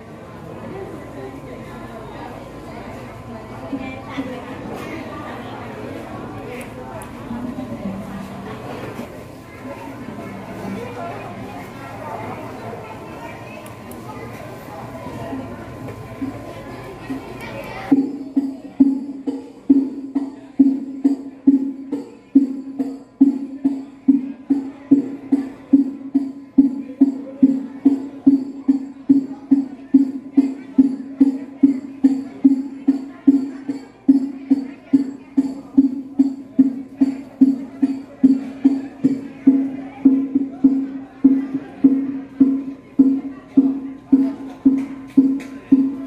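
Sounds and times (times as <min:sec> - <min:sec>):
steady drum beat: 0:17.9 - 0:46.0.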